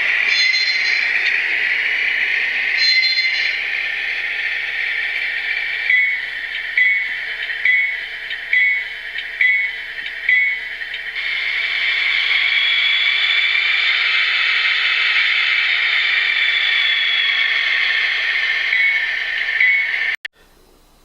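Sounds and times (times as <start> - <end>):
locomotive bell strikes: 0.0 - 1.6
model diesel engine running: 0.0 - 20.2.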